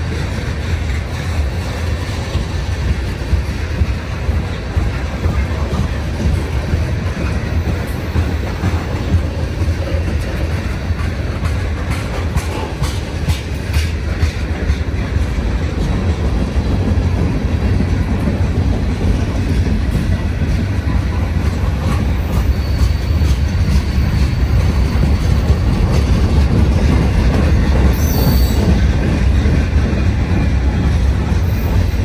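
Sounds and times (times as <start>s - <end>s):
freight train wheels rumbling: 0.0s - 32.0s
train clicks: 0.0s - 32.0s
high wheel squeal: 22.0s - 26.0s, 27.9s - 28.8s.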